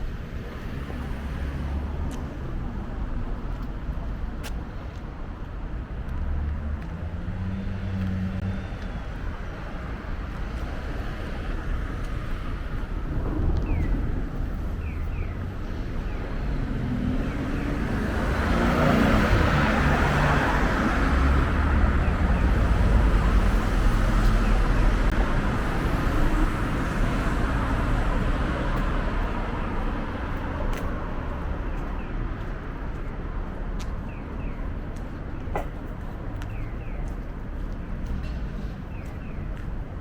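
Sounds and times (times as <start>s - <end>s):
vehicle passing: 5.8s - 31.9s.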